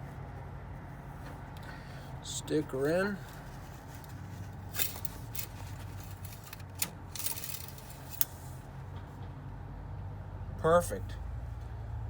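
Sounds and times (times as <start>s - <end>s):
dipstick scraping: 2.8s - 8.6s.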